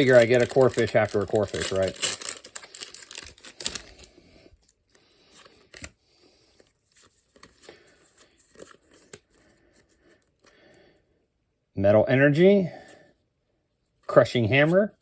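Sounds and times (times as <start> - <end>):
wrapper crinkling and tearing: 0.0 - 4.2
trading cards rustling and clicking: 0.0 - 10.5.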